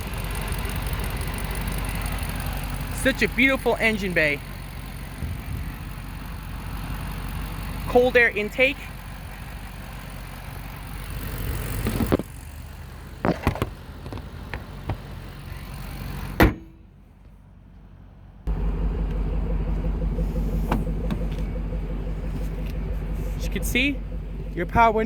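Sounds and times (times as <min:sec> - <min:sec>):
car engine idling: 0:00.0 - 0:25.0
car door slamming: 0:16.4 - 0:16.8.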